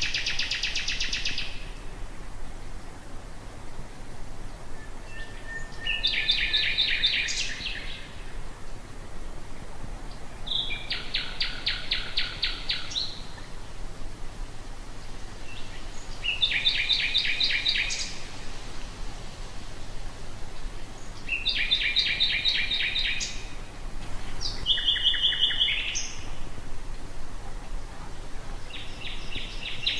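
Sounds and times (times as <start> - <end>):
nightingale singing: 0.0 - 2.0, 4.5 - 8.4, 10.1 - 13.5, 15.4 - 18.4, 20.8 - 26.4, 27.9 - 29.9.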